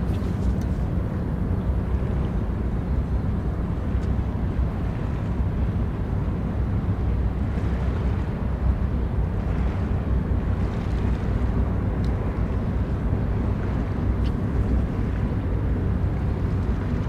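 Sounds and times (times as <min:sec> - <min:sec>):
ship engines rumbling: 0:00.0 - 0:17.0.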